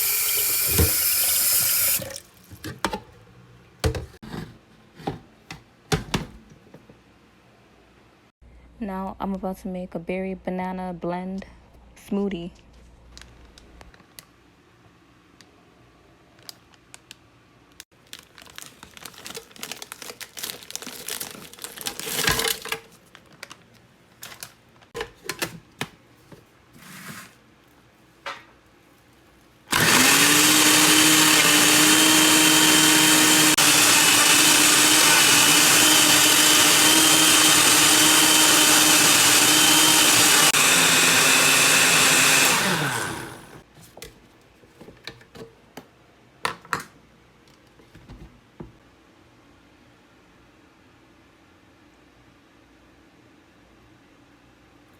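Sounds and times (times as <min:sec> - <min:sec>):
blender motor running: 0:00.0 - 0:02.0, 0:29.7 - 0:43.6.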